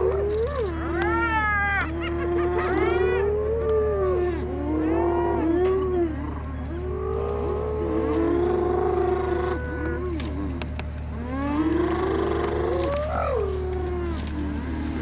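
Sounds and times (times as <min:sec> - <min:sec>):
wavering animal yowls: 0:00.0 - 0:06.4, 0:11.2 - 0:15.0
steady low hum: 0:00.0 - 0:15.0.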